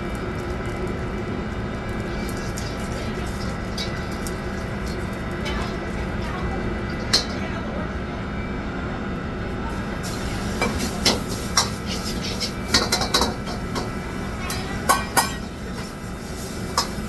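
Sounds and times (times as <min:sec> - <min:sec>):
metal cookware clanking: 0:06.9 - 0:07.5, 0:10.0 - 0:17.0.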